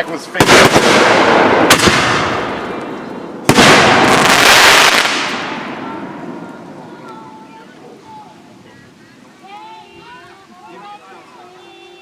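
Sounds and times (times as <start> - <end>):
fireworks bangs: 0.0 - 7.6
fireworks hissing tail: 0.0 - 8.7.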